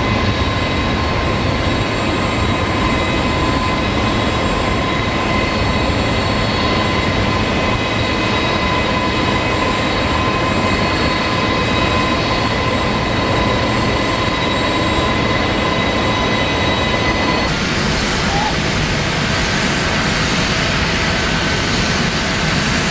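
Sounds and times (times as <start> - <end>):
jet engines running: 0.0 - 22.9.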